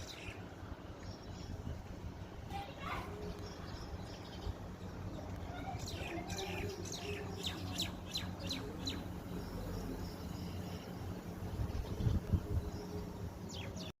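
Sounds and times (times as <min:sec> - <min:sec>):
small bird chirping: 0:00.0 - 0:01.8
steady low hum: 0:00.0 - 0:14.0.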